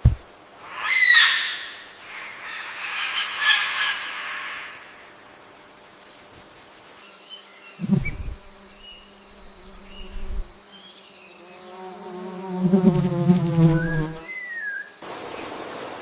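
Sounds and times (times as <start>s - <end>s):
flying insect buzzing: 0.0s - 0.3s, 5.3s - 15.9s
faint bird chirps: 6.8s - 11.4s, 13.6s - 15.0s.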